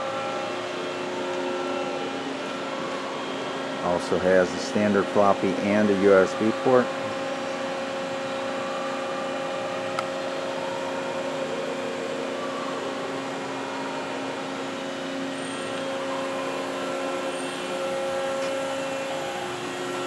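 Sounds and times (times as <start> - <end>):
hydraulic pump humming: 3.7 - 11.0, 12.5 - 20.0.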